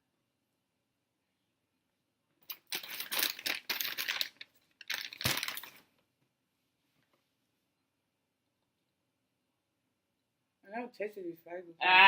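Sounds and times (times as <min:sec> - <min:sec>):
paper packaging crinkling: 0:02.6 - 0:05.8.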